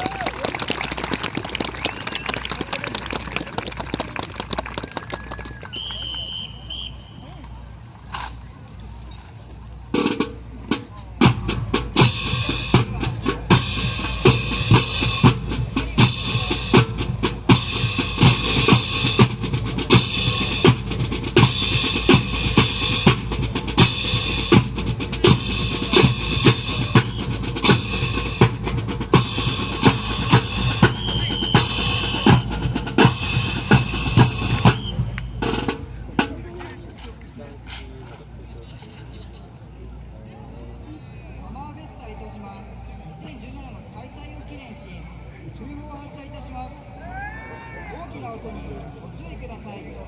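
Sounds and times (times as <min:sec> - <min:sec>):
marching drum music: 0:09.8 - 0:38.2.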